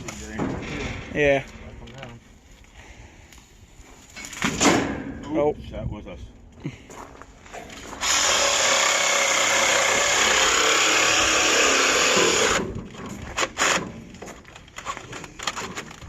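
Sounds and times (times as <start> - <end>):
reciprocating saw cutting: 8.0 - 14.0.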